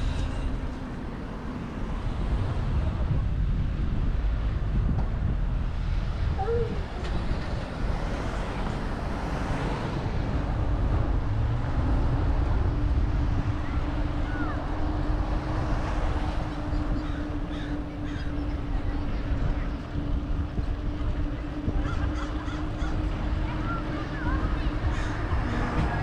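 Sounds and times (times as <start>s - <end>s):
traffic noise: 0.0s - 26.0s
wind rumbling on microphone: 0.0s - 26.0s
steady low hum: 10.0s - 26.0s.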